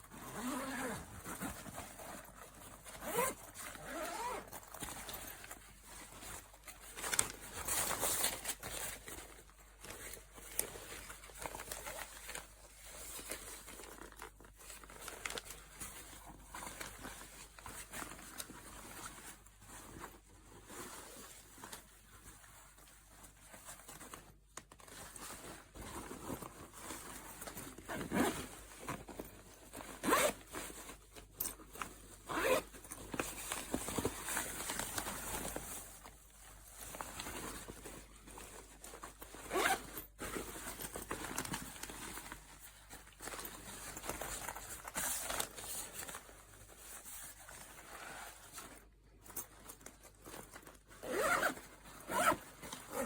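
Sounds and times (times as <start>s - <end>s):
fabric handling noise: 0.0s - 53.0s
backpack zip opening and closing: 0.2s - 1.5s, 3.0s - 4.6s, 27.9s - 28.5s, 30.0s - 30.4s, 32.3s - 32.7s, 39.4s - 40.1s, 51.0s - 53.0s.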